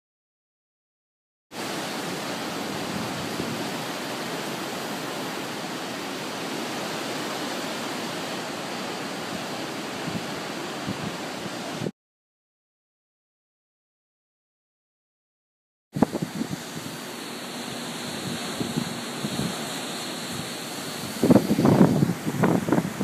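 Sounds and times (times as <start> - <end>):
heavy rain and wind: 1.5 - 11.9, 16.0 - 23.0.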